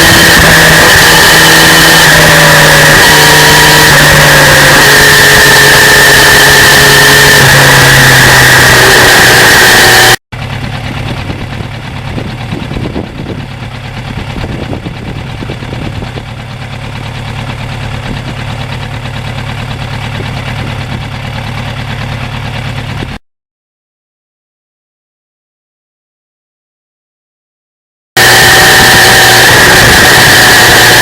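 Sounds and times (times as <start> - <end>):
loud high steady tone: 0.0 - 10.2, 28.2 - 31.0
motorcycle engine running: 0.0 - 23.2, 28.2 - 31.0.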